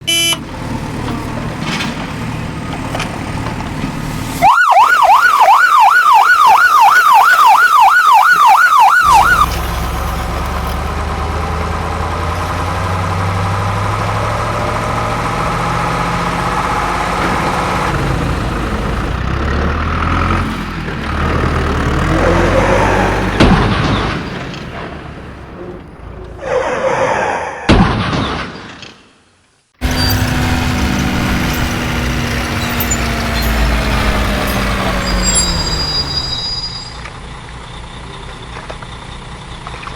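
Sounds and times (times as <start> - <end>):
fast wailing siren: 4.4 - 9.5.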